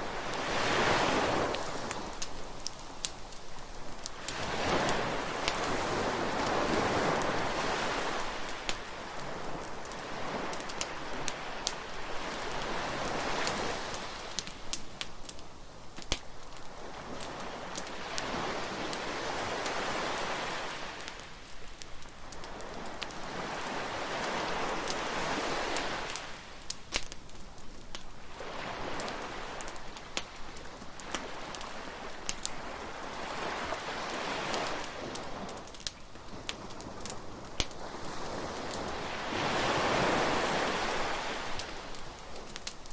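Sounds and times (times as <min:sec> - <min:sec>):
surf washing onto shore: 0:00.0 - 0:15.1, 0:16.1 - 0:27.2, 0:28.0 - 0:42.9
wood fire crackling and popping: 0:00.0 - 0:39.1, 0:40.4 - 0:42.9.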